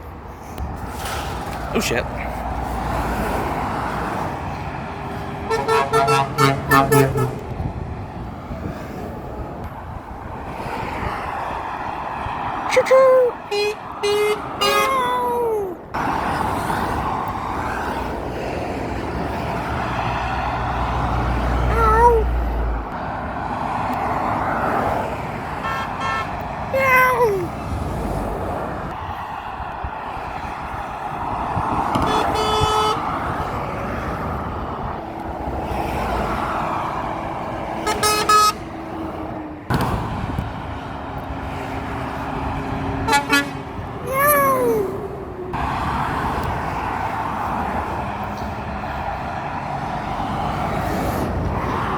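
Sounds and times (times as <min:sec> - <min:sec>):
road traffic passing: 0:00.0 - 0:51.9
truck engine rumble: 0:00.0 - 0:51.9
truck horn blasts: 0:05.4 - 0:07.5, 0:13.5 - 0:15.0, 0:25.6 - 0:26.4, 0:31.9 - 0:33.0, 0:37.8 - 0:38.7, 0:43.0 - 0:43.8.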